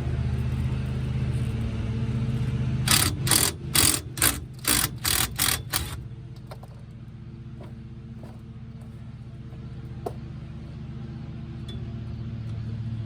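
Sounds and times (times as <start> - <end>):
steady low hum: 0.0 - 13.0
hand ratchet clicking: 2.9 - 6.0.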